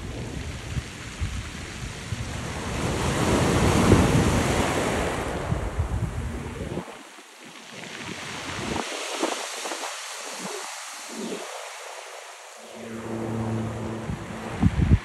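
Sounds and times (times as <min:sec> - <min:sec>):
wind buffeting microphone: 0:00.0 - 0:06.8, 0:12.7 - 0:15.0
surf washing ashore: 0:00.0 - 0:15.0.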